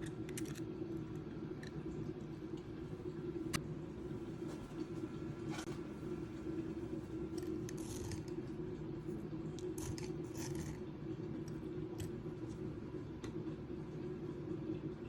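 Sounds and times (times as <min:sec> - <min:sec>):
steady low hum: 0:00.0 - 0:15.0
light scraping and snipping: 0:07.4 - 0:08.4, 0:09.6 - 0:10.8.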